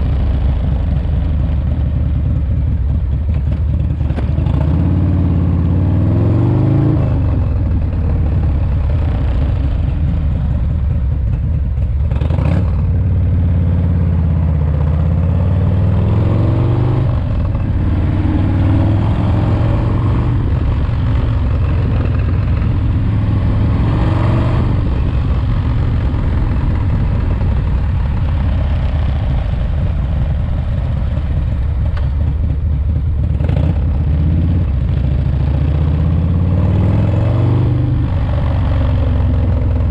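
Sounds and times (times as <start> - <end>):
motorcycle engine running: 0.0 - 39.9
wind noise: 15.2 - 34.8.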